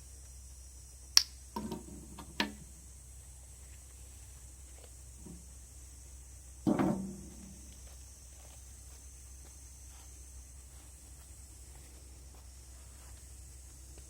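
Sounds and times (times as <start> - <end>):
knocks with low ring: 6.7 - 7.7.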